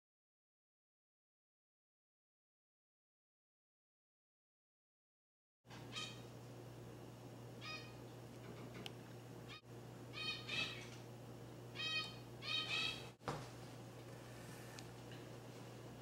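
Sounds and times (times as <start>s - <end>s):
low electrical hum: 5.7s - 16.0s
bird chirping: 5.9s - 6.3s, 7.6s - 8.0s, 9.5s - 11.0s, 11.8s - 13.2s.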